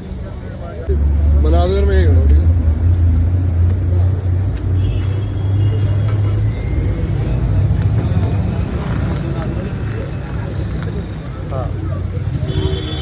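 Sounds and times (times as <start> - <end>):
street background noise: 0.0 - 13.0.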